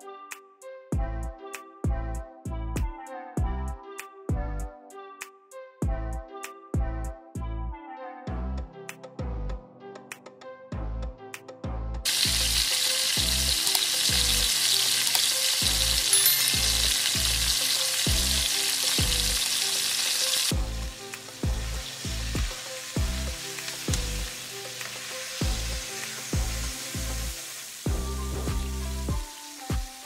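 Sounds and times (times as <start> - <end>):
background music with beat: 0.0 - 30.0
chicken deep-frying in oil: 12.1 - 30.0.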